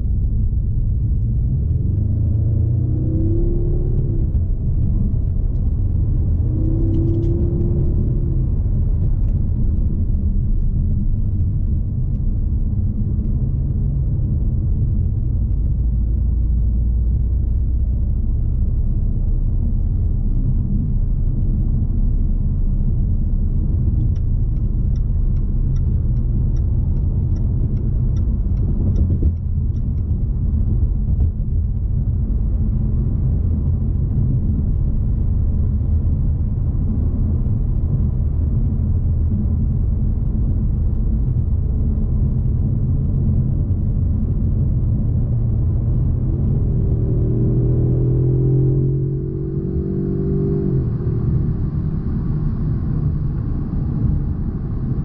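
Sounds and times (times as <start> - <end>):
car engine drone in cabin: 0.0 - 55.0
road noise: 0.0 - 55.0
turn signal ticking: 23.1 - 32.1.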